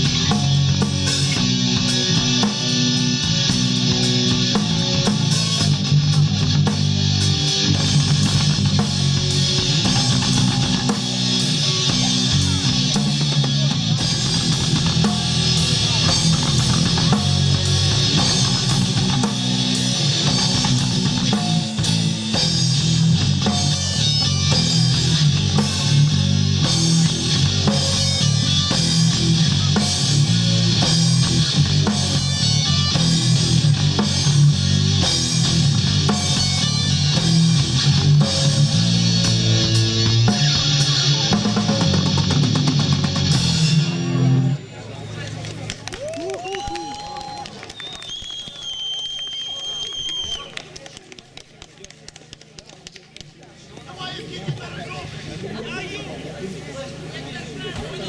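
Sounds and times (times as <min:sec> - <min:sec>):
live rock band playing: 0:00.0 - 0:44.7.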